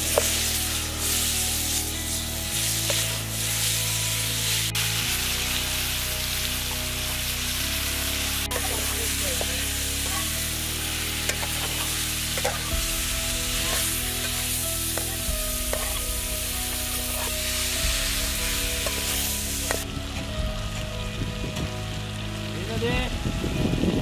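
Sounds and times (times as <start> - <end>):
chicken sizzling in a pan: 0.0 - 24.0
spoon scraping metal pan: 13.6 - 16.1.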